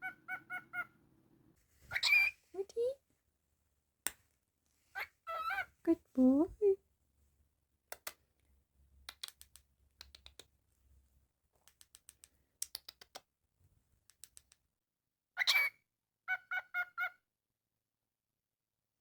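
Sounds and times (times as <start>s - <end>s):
cockatiel call: 0.0s - 1.0s, 1.9s - 2.4s, 5.0s - 5.7s, 15.4s - 15.7s
light sharp clicks and taps: 7.9s - 10.6s, 11.6s - 13.3s, 14.0s - 14.6s.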